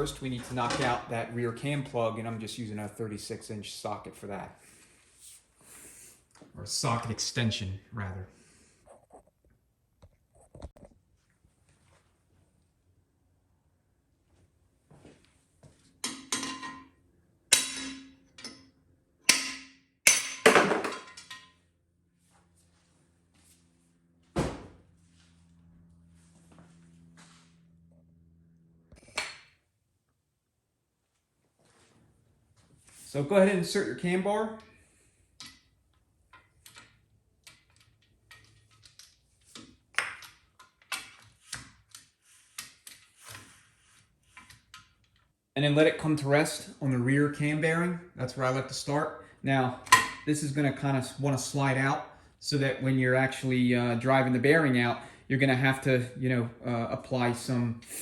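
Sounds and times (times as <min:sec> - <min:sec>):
hammer striking metal: 0:17.5 - 0:18.6, 0:19.2 - 0:21.5.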